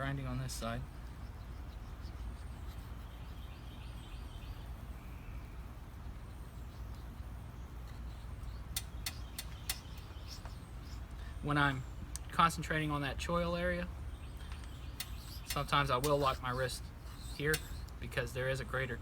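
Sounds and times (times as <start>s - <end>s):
faint bird chirps: 1.0s - 12.4s, 14.1s - 17.9s
sharp clicks: 8.7s - 10.5s, 14.4s - 16.5s.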